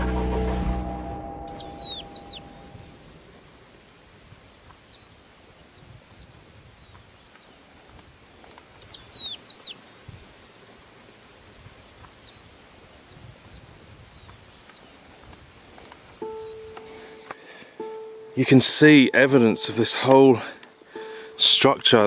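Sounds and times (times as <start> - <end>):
songbird whistled song: 0.0 - 3.0, 8.8 - 9.8, 16.0 - 17.2
held musical tone: 0.0 - 3.4, 16.2 - 22.0
faint outdoor background: 0.0 - 22.0.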